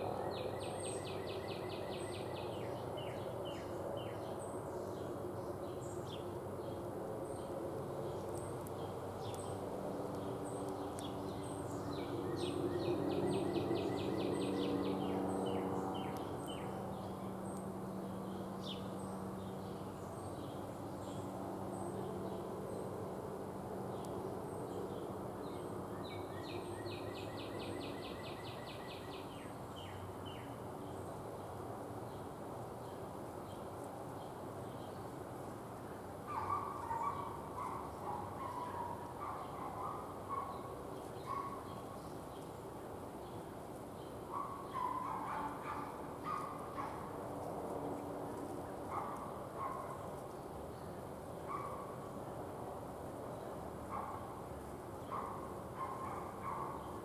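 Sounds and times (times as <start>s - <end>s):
songbird trill: 0.0s - 4.5s, 10.5s - 17.7s, 25.5s - 30.5s
songbirds chirping: 0.0s - 23.0s, 23.9s - 35.2s.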